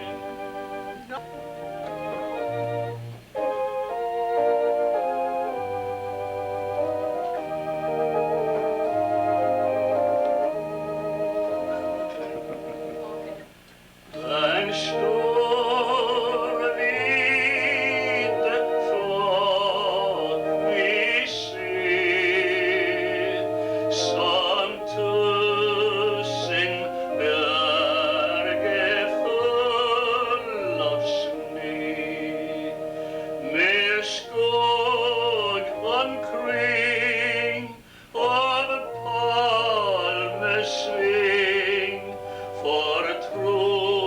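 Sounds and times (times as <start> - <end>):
keyboard accompaniment: 0.0 - 44.0
person singing a hymn: 0.0 - 44.0.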